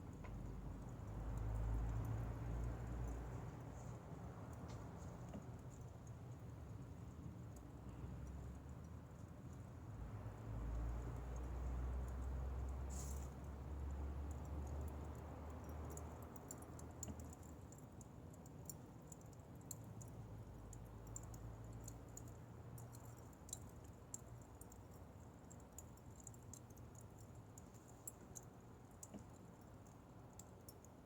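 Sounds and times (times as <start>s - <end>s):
fire crackling: 10.6s - 29.6s.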